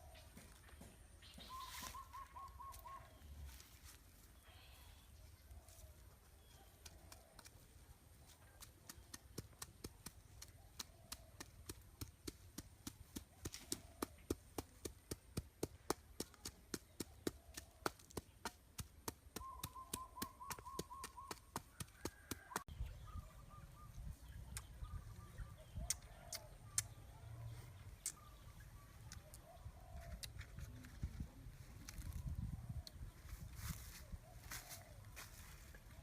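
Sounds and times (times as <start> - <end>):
warbling bird call: 19.4 - 21.5.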